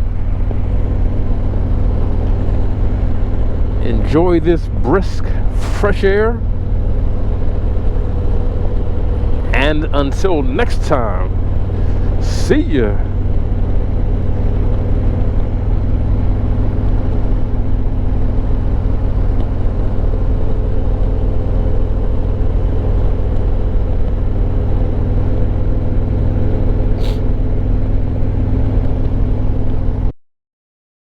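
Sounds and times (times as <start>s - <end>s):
motorcycle engine cruising: 0.0s - 30.0s.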